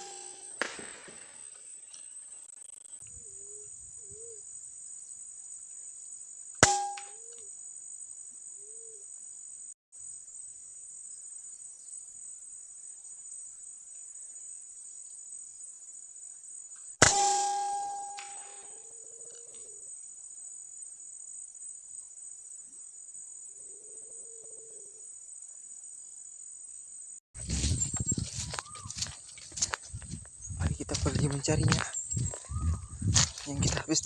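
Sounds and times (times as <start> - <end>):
ringing tone: 0.0 - 0.6, 6.6 - 7.2, 17.0 - 18.7
air rifle shot: 0.0 - 1.4, 17.0 - 18.6
insects droning: 0.0 - 34.0.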